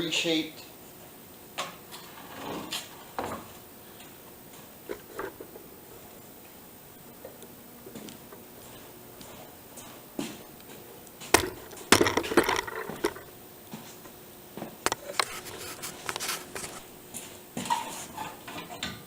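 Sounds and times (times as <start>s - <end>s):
boards clattering and rattling: 14.9s - 16.9s.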